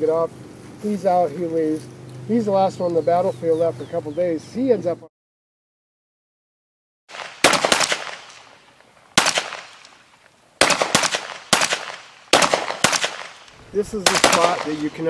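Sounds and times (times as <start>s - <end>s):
gunshots with echo: 7.1s - 8.6s, 9.2s - 10.0s, 10.6s - 15.0s.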